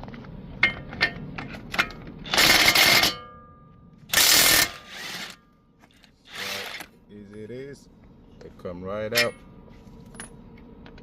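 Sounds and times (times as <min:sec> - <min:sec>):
impact wrench bursts: 0:02.2 - 0:03.2, 0:04.1 - 0:05.4, 0:06.3 - 0:06.9
metallic ring: 0:02.4 - 0:03.9.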